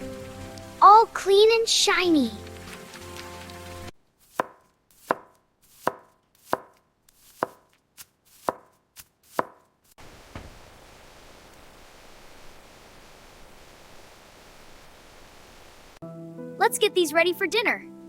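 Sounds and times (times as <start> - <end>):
knife chopping on cutting board: 4.3 - 9.6
steady hiss: 10.0 - 16.0.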